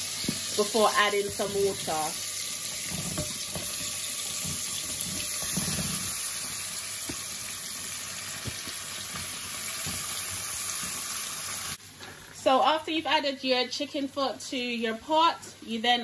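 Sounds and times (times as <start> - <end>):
food sizzling in hot oil: 0.0 - 12.0
knocks and clicks in pot: 2.8 - 6.2.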